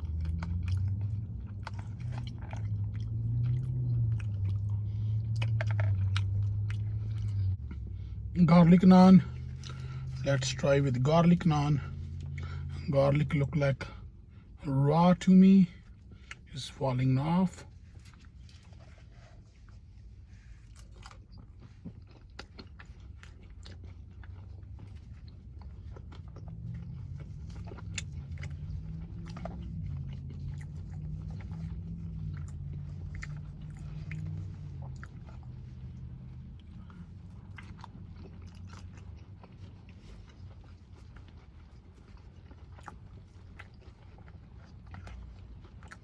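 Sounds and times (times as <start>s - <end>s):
person chewing and crunching: 0.0s - 14.6s, 15.2s - 46.0s.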